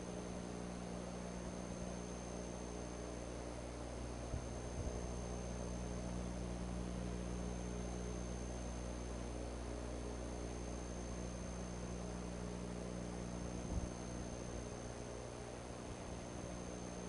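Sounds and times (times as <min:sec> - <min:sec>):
microphone hiss and electrical hum: 0:00.0 - 0:17.0.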